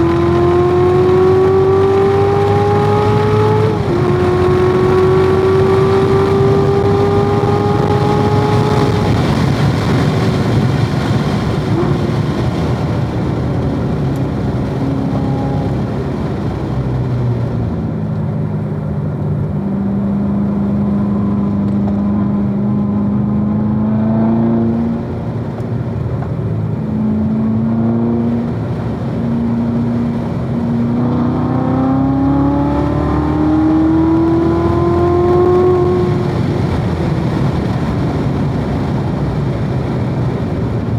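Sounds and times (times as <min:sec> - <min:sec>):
gear changes: 0:00.0 - 0:40.9
sports car engine revving: 0:00.0 - 0:40.9.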